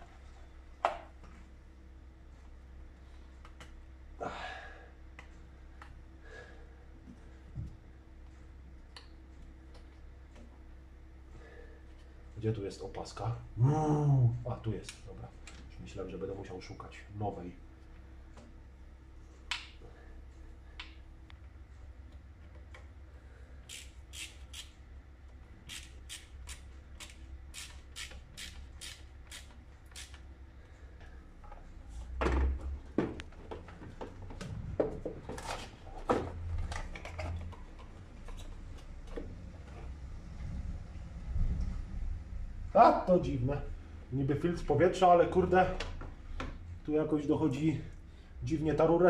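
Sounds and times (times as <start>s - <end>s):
screwdriver clicking: 23.6s - 24.7s, 25.7s - 30.2s.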